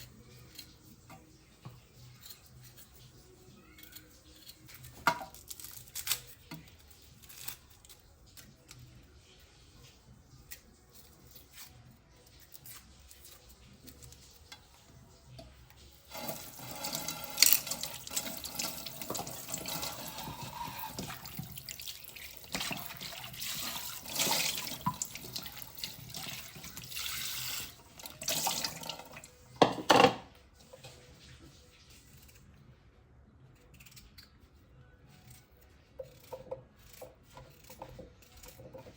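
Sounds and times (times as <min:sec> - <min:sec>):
tap water running into sink: 0:16.1 - 0:30.2.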